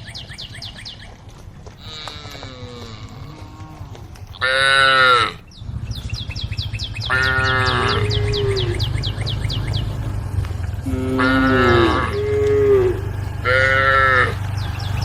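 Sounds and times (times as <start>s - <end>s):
cattle mooing: 1.8s - 5.4s, 7.1s - 14.9s
low rumble: 5.4s - 15.0s.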